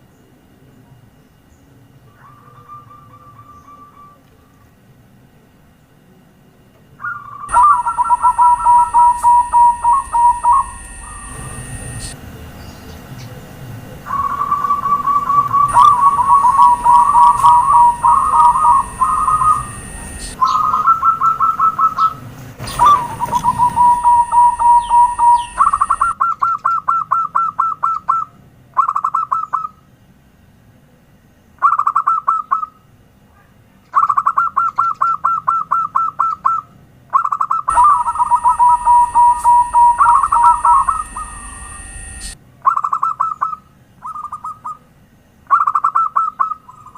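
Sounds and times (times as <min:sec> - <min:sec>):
doves cooing: 0:07.0 - 0:12.2, 0:14.0 - 0:26.8, 0:37.2 - 0:44.8.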